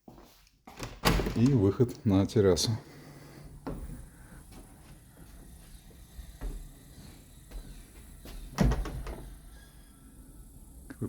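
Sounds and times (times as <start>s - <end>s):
soft footsteps thumps: 3.6s - 8.7s.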